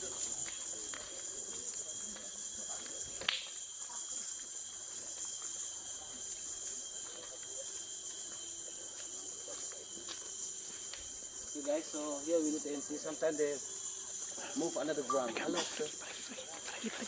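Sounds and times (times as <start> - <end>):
insects high-pitched drone: 0.0 - 17.0
thin steady whine: 0.0 - 17.0.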